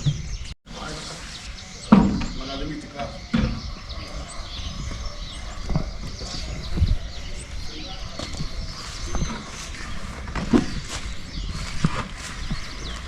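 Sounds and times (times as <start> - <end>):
birds chirping: 0.0 - 13.0
dull thumps: 1.8 - 13.0.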